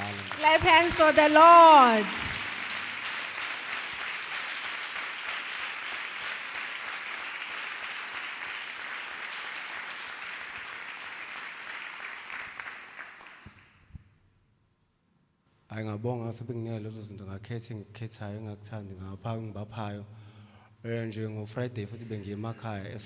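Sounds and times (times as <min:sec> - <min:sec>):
congregation applauding: 0:00.0 - 0:13.8.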